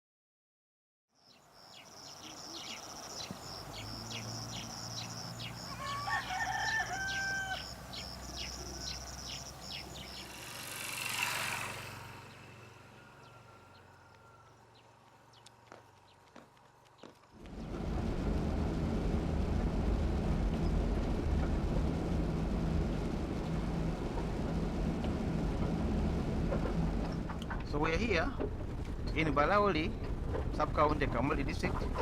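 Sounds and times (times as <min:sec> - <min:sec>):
birds chirping: 0:01.2 - 0:17.7
rooster crowing: 0:05.4 - 0:09.0
rushing whoosh: 0:09.6 - 0:13.2
low rumble: 0:17.4 - 0:32.0.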